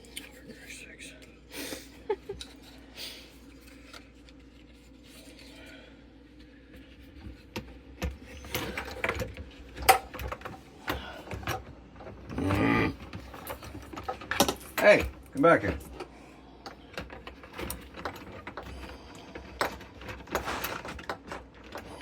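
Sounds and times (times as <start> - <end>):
rustling clatter: 16.9 - 22.0.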